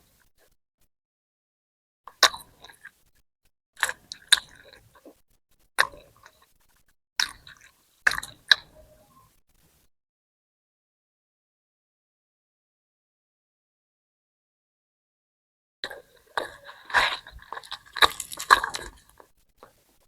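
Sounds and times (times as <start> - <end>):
biting and chewing smacks: 2.1 - 3.1, 3.8 - 8.7, 15.8 - 20.0.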